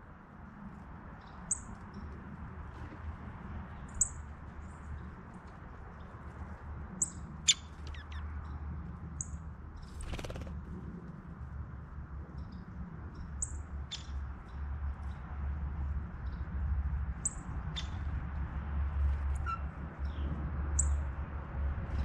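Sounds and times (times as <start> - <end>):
small birds chirping: 6.9 - 8.6, 12.4 - 15.3, 16.1 - 18.1
wings fluttering: 9.8 - 10.8.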